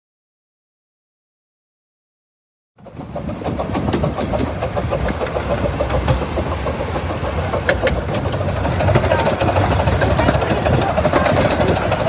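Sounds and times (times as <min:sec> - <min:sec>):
miniature locomotive running: 0:02.8 - 0:12.0.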